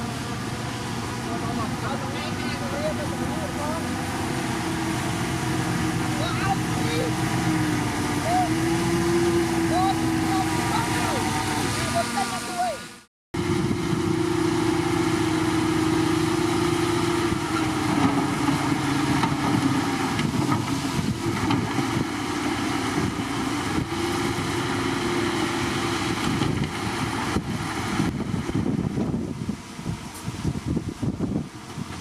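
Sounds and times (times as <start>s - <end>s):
engine whine: 0.0s - 32.0s
heavy machinery diesel engine: 0.0s - 32.0s.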